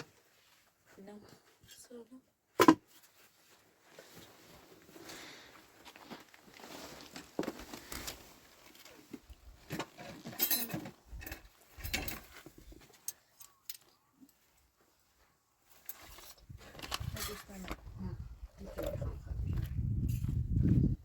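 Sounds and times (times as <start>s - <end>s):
rustling: 2.8s - 17.9s
clinks and knocks: 9.6s - 14.0s.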